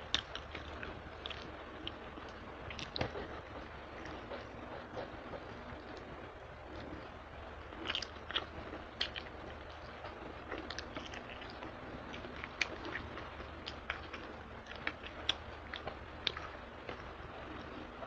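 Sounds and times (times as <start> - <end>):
person chewing food: 0.0 - 7.1, 7.7 - 18.0
mouth smacks and clicks: 7.8 - 9.3.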